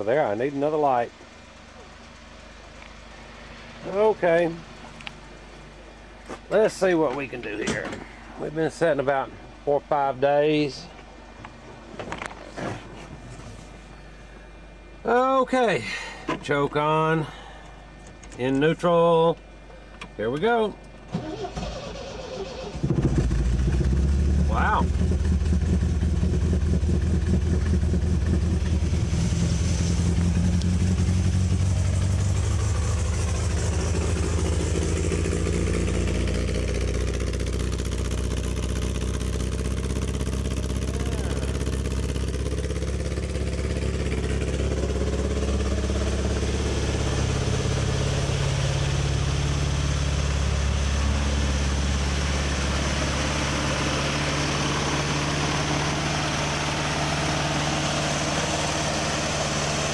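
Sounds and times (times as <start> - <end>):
car engine running on choke: 20.0 - 59.9.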